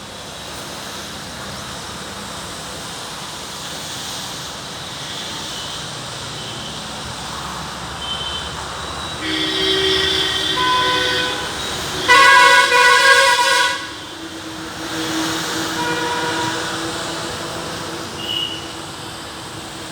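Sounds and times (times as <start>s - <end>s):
heavy rain hiss: 0.0s - 19.9s
passing traffic: 0.0s - 19.9s
vehicle horn blasts: 8.0s - 8.6s, 9.2s - 16.9s, 18.2s - 18.8s.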